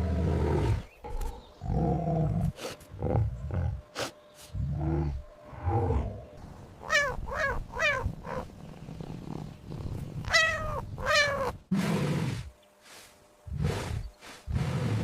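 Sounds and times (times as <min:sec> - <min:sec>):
cat meowing: 0:06.8 - 0:08.5, 0:10.2 - 0:11.6.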